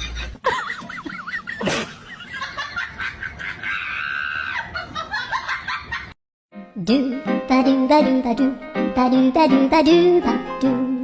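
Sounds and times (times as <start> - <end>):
high-pitched screaming cries: 3.6 - 4.8.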